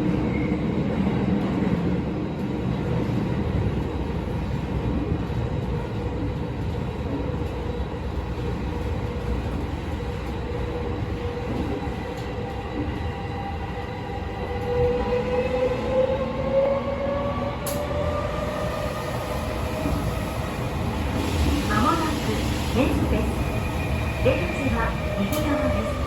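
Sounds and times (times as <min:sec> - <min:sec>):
subway wheels rumbling on rail: 0:00.0 - 0:26.0.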